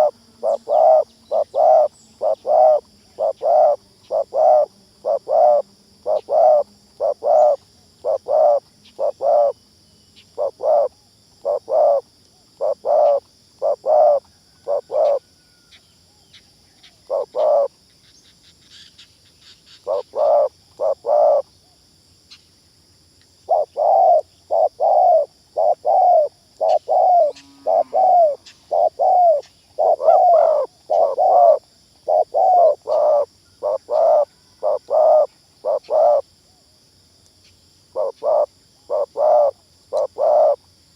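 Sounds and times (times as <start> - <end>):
dove cooing: 0.0 - 9.6, 10.3 - 12.0, 12.6 - 15.3, 17.0 - 17.7, 19.8 - 21.4, 23.5 - 36.2, 37.9 - 40.6
high insect drone: 0.0 - 40.9.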